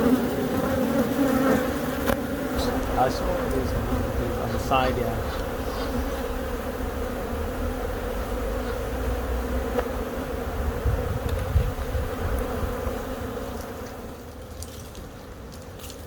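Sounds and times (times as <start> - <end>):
honeybees buzzing: 0.0 - 14.6
low rumble: 2.6 - 8.5.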